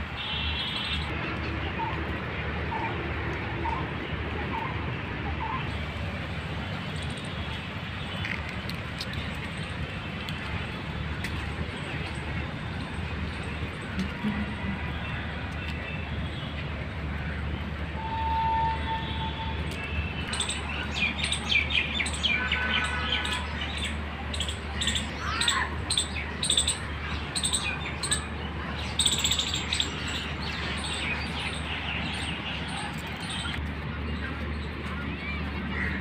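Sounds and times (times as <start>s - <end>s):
birds chirping: 19.0s - 36.0s.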